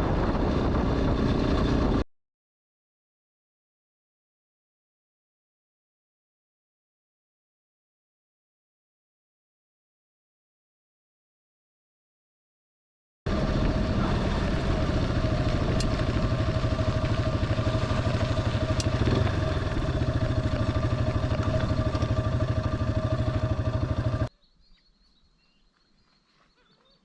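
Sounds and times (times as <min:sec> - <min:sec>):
motorcycle engine running: 0:13.3 - 0:24.3
faint bird chirps: 0:24.3 - 0:27.0.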